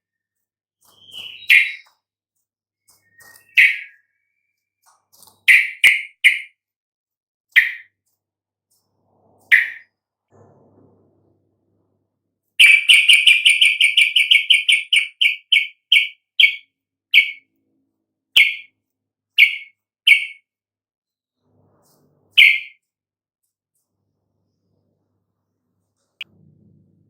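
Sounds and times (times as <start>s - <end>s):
bird chirping: 0.0s - 2.0s, 2.8s - 6.5s, 7.5s - 8.0s, 9.4s - 9.9s, 12.6s - 17.5s, 18.3s - 18.7s, 19.3s - 20.4s, 21.8s - 22.8s.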